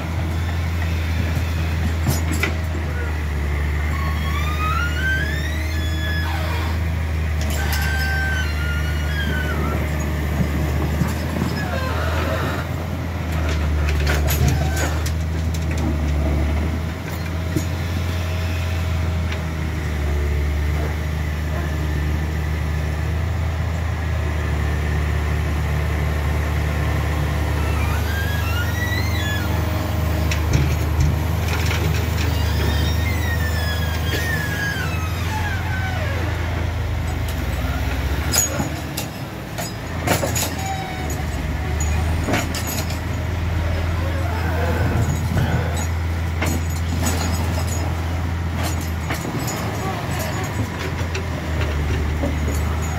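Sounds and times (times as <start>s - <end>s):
high-pitched squeals: 3.8s - 10.2s, 27.5s - 30.5s, 31.9s - 36.5s
truck engine running: 8.6s - 52.9s.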